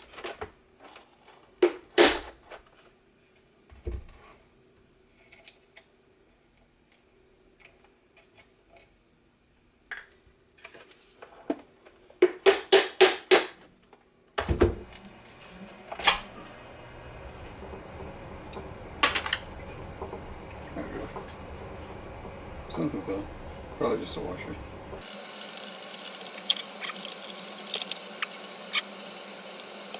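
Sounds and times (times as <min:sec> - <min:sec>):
plastic and metal parts clinking: 0:25.0 - 0:29.9.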